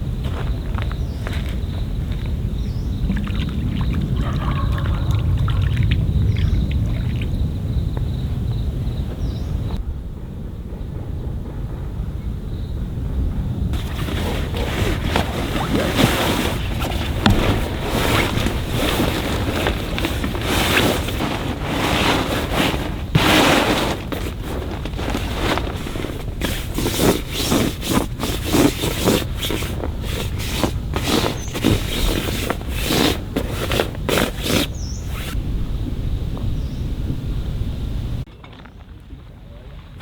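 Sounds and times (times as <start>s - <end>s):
wind buffeting microphone: 0.0s - 40.0s
microphone handling noise: 13.8s - 36.6s.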